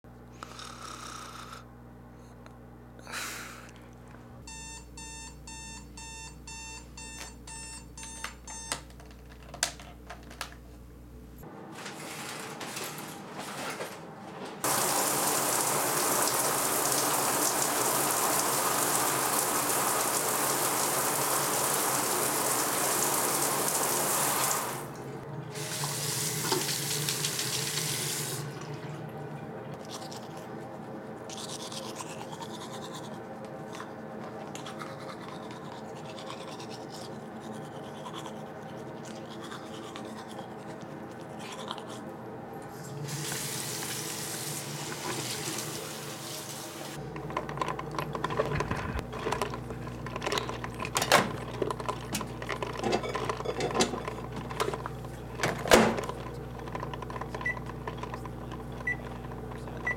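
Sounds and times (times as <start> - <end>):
electronic alarm beeping: 4.4 - 8.8
water running from a tap: 14.6 - 28.6, 43.1 - 47.0.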